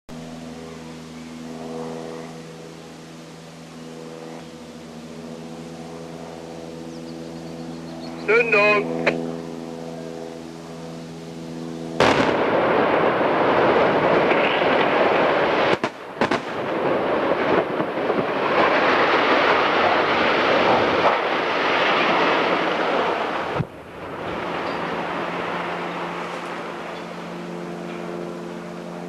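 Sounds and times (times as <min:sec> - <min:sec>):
explosive charges bang: 0:12.0 - 0:15.0, 0:15.6 - 0:17.9.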